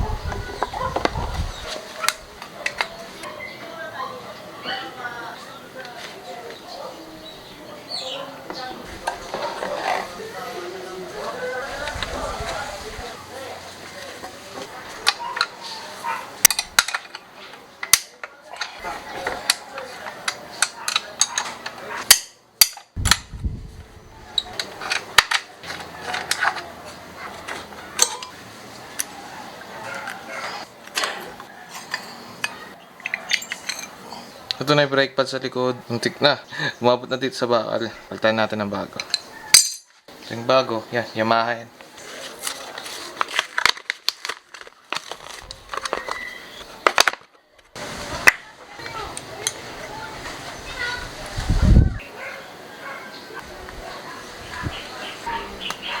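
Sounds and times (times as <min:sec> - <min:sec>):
hand tools clicking and knocking: 0:16.4 - 0:23.3, 0:24.4 - 0:28.4, 0:30.8 - 0:34.6, 0:39.0 - 0:40.0, 0:42.5 - 0:47.4
metallic clicks and clinks: 0:31.9 - 0:34.0.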